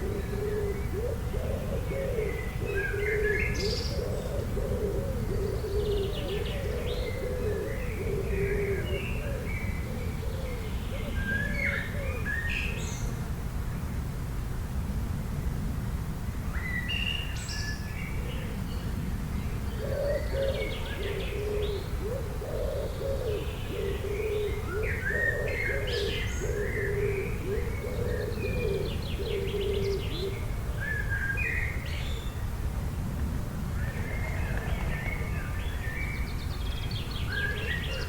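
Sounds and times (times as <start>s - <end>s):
bird cooing call: 0.0s - 13.1s, 19.6s - 32.4s, 36.9s - 38.0s
birds chirping and trilling: 0.0s - 13.1s, 16.7s - 32.5s, 33.8s - 38.0s.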